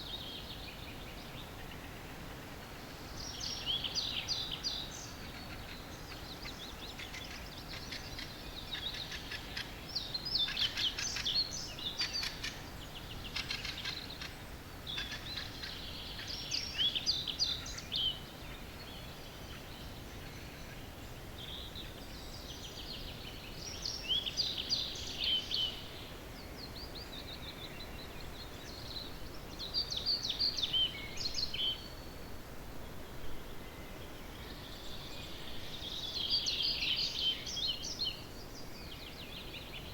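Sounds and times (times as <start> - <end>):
low background noise: 0.0 - 39.9
songbirds chirping and trilling: 0.0 - 39.9.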